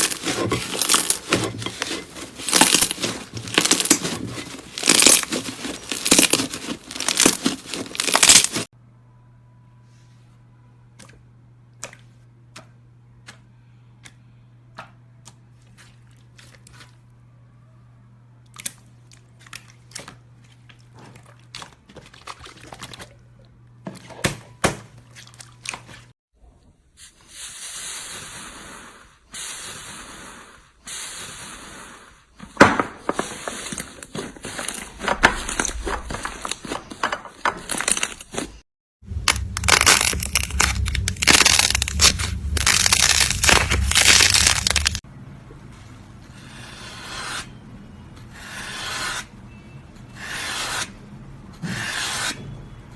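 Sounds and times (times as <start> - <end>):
slime squishing and crackling: 0.0 - 8.7, 34.0 - 45.0.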